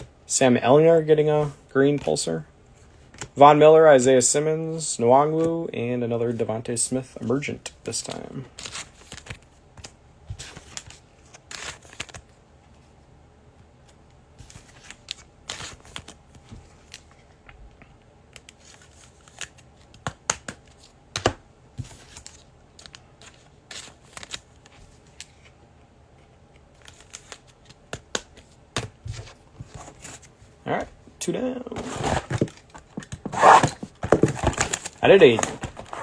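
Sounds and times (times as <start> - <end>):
cards and packaging rustling: 7.4 - 12.3, 18.4 - 25.6, 26.6 - 36.0.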